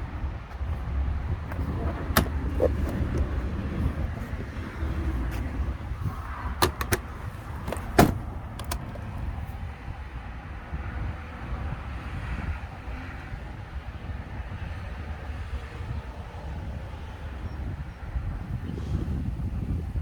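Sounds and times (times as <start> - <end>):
sharp clicks and knocks: 1.5 - 4.4, 6.6 - 9.2.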